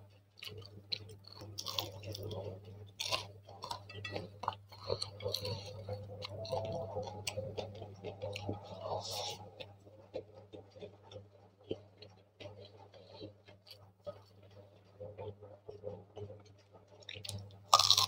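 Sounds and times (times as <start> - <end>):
chewing: 0.1 - 18.0
low hum: 3.6 - 10.4.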